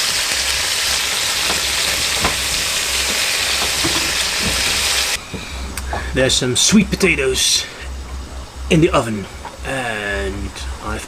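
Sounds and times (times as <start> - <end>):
food sizzling in a frying pan: 0.0 - 5.2
light knocks: 1.4 - 6.1.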